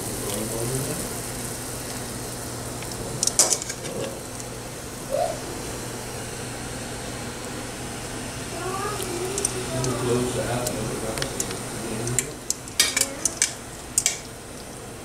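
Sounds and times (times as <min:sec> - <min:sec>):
steady low hum: 0:00.0 - 0:15.0
utensils clinking on a pot: 0:03.2 - 0:04.2, 0:11.4 - 0:14.3.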